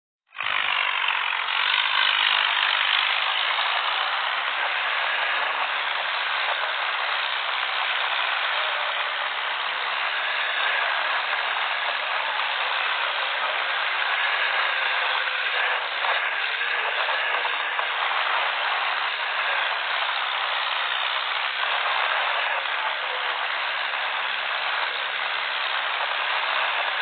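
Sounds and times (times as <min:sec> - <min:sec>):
tractor diesel engines running: 0:00.3 - 0:27.0.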